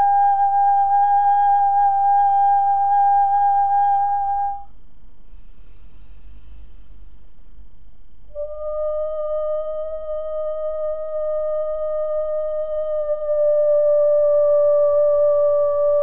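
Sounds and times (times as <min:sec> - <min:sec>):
woman's long held vocal note: 0:00.0 - 0:04.7, 0:08.3 - 0:16.0.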